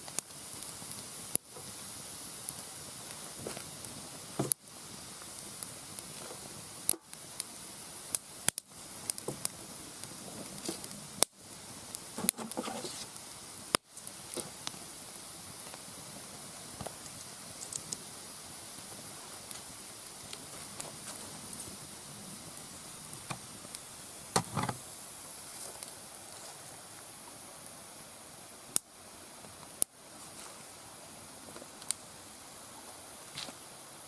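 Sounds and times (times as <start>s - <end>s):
sharp pops of burning wood: 0.0s - 25.0s, 31.5s - 32.1s
campfire crackling: 0.0s - 34.0s
hiss of burning wood: 0.0s - 34.0s.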